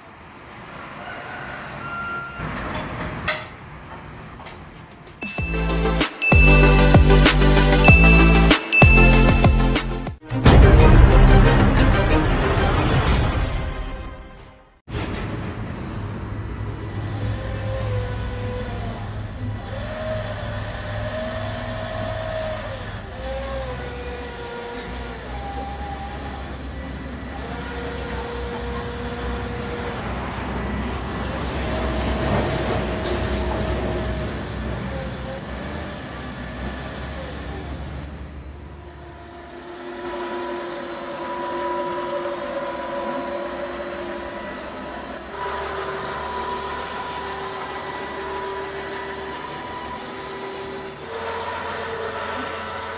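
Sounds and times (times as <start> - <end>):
toy truck motor whine: 16.8 - 52.9.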